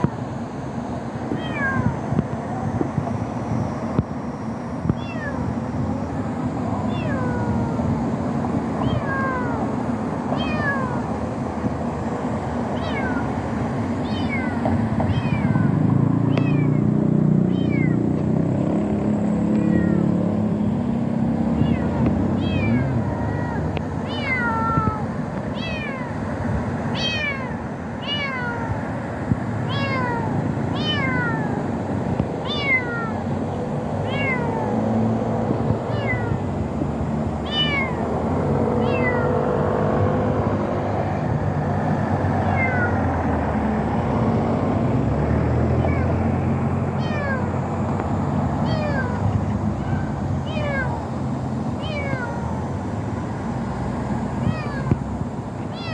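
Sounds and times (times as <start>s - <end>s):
kittens mewing: 12.8s - 13.4s, 14.0s - 16.8s, 17.5s - 18.0s, 21.6s - 26.2s, 29.7s - 31.7s, 32.4s - 33.3s, 34.0s - 34.8s, 35.9s - 36.5s, 37.4s - 38.0s, 38.8s - 39.4s, 42.4s - 43.1s, 47.0s - 47.5s, 48.6s - 51.1s, 51.8s - 52.6s, 54.4s - 55.0s.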